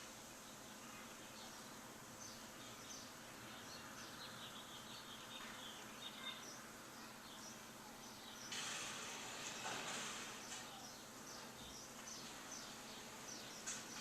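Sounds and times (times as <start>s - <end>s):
background hiss: 0.0s - 14.0s
birds chirping faintly: 0.0s - 14.0s.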